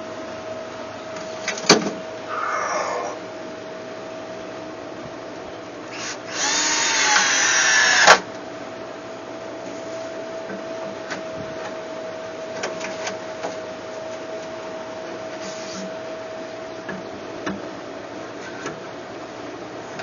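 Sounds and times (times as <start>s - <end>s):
steady high hum: 0.0s - 20.0s.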